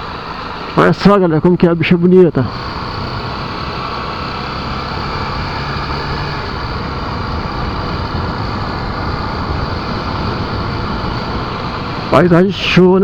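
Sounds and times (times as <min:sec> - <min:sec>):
motorcycle engine running: 0:00.0 - 0:13.0
wind rushing on microphone: 0:04.9 - 0:13.0.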